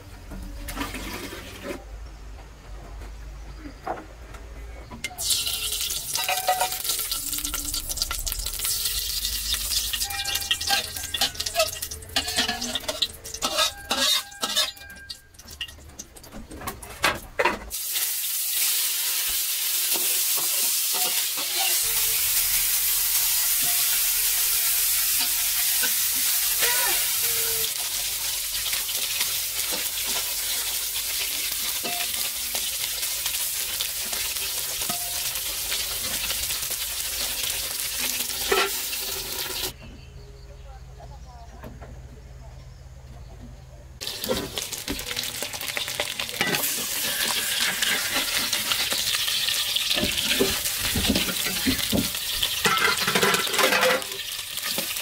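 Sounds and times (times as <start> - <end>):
utensils clinking against a pan: 5.1 - 39.8, 44.0 - 55.0
food sizzling in a pan: 5.2 - 14.8, 17.7 - 39.8, 44.0 - 55.0.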